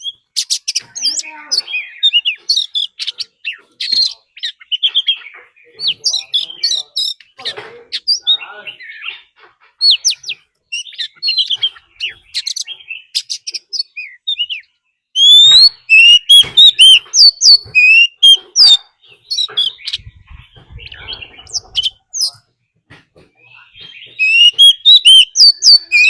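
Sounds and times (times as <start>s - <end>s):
bird singing whistled notes: 8.0s - 22.4s, 23.7s - 26.0s.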